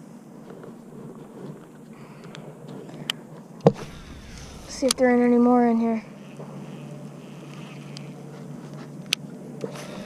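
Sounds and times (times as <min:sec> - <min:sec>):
low background rush: 0:00.2 - 0:07.4.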